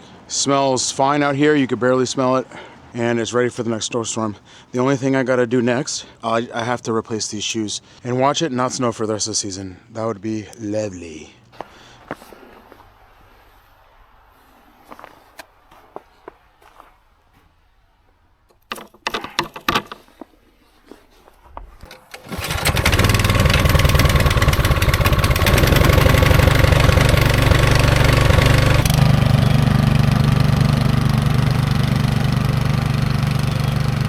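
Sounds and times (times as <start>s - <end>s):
clicks and knocks: 18.5s - 20.3s
snow blower engine running: 22.1s - 34.0s.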